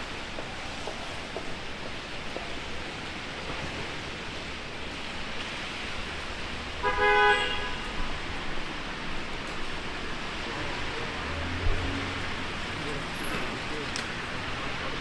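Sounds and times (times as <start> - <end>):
street traffic: 0.0 - 15.0
vehicle horn honk: 6.8 - 7.9.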